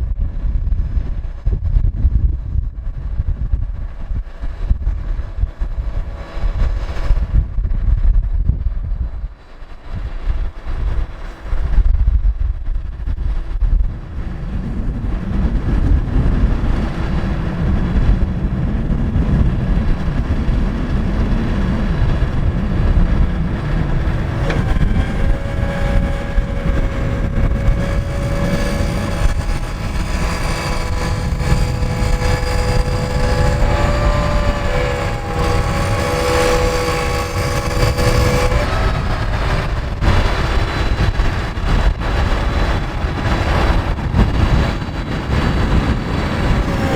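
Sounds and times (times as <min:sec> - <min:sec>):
steady whine: 0:00.0 - 0:46.9
truck diesel engine rumbling: 0:21.1 - 0:46.9.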